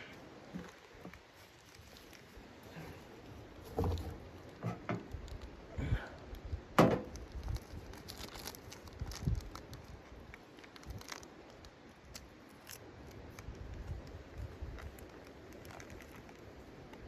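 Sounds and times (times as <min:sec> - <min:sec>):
irregular knocks and thumps: 0:03.7 - 0:05.0.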